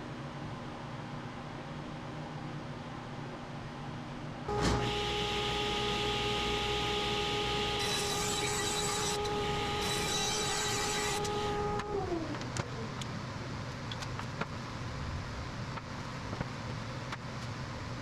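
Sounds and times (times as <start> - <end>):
table saw whining: 4.5 - 12.9.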